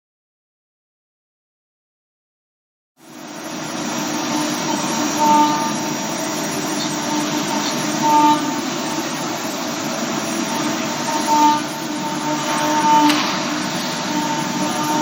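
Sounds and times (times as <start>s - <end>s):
milling machine hiss: 3.0s - 15.0s
cutter whining tone: 3.2s - 15.0s.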